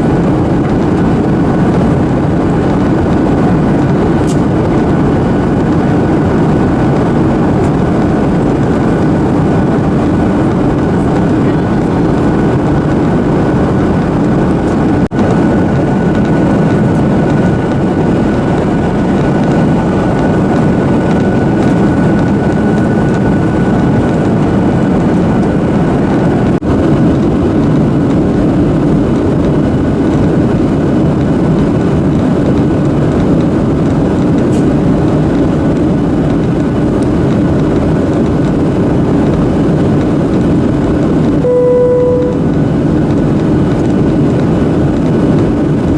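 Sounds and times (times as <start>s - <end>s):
airliner cabin roar: 0.0s - 45.9s
faint steady whine: 41.3s - 44.1s.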